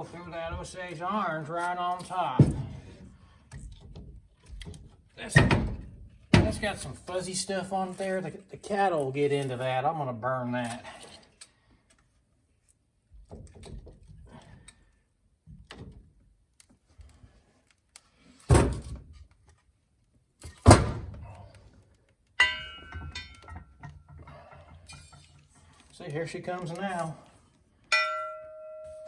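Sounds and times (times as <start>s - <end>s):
logs thunking onto grate: 2.3s - 3.1s, 5.2s - 6.8s, 18.5s - 19.0s, 20.5s - 21.3s.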